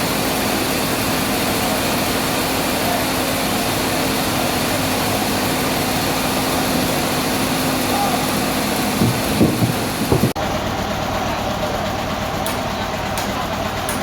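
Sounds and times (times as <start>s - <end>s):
sawmill machinery humming: 0.0s - 14.0s.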